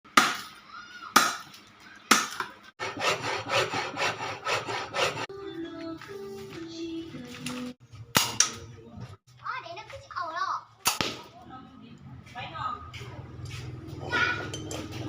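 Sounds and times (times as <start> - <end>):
hand saw sawing wood: 2.8 - 5.3.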